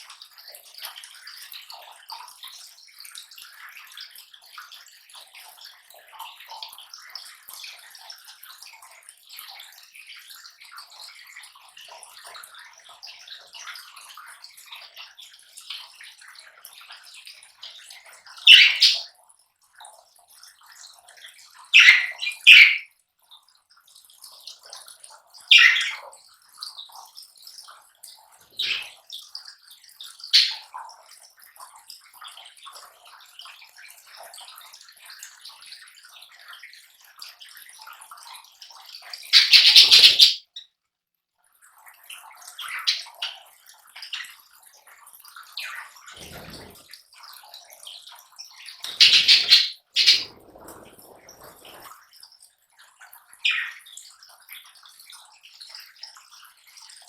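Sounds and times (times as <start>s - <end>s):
lovebirds chattering: 18.5s - 19.0s, 21.8s - 22.8s, 25.5s - 26.0s, 28.6s - 29.0s, 39.4s - 40.4s, 48.9s - 51.8s.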